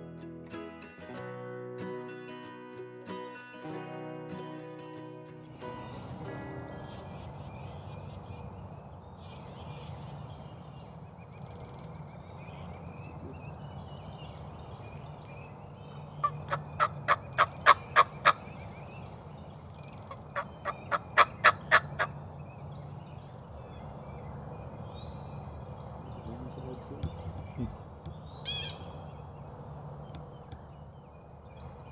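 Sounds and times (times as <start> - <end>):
small birds chirping: 5.4 - 31.9
turkey yelping: 16.2 - 18.5, 19.9 - 22.1, 28.4 - 28.9.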